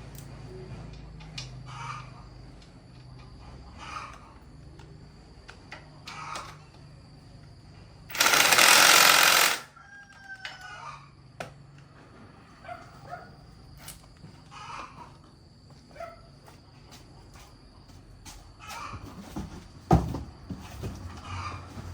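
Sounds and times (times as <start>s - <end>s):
rooster crowing: 8.2s - 11.2s.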